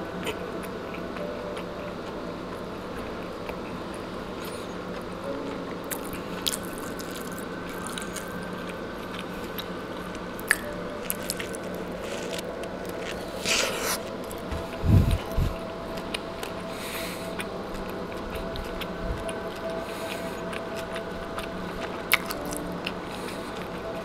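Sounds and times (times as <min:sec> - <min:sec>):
low hum: 0:00.0 - 0:24.0
person chewing food: 0:00.2 - 0:24.0
biting into a wrap: 0:05.8 - 0:24.0.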